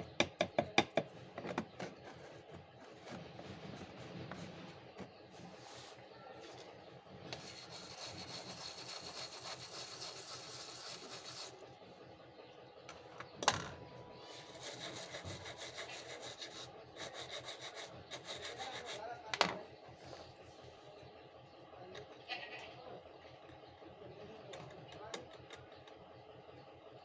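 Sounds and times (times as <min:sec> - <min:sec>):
small tool scraping back and forth: 0:01.4 - 0:06.6, 0:07.2 - 0:11.6, 0:14.2 - 0:19.3.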